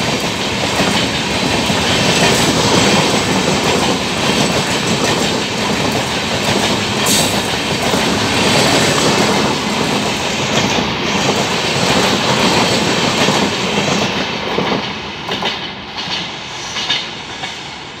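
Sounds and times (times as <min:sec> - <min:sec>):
train coaches rushing past: 0:00.0 - 0:18.0.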